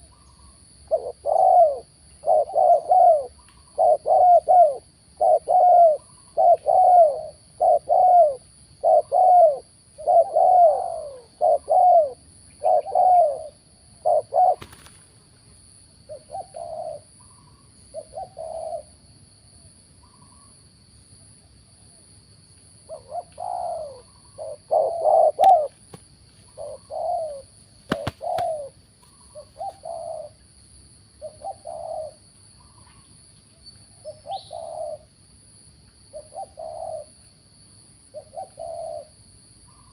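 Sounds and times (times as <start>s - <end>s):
doves cooing: 0.9s - 15.1s, 16.1s - 19.0s, 22.9s - 30.4s, 31.2s - 33.0s, 34.0s - 35.1s, 36.1s - 37.2s, 38.1s - 39.1s.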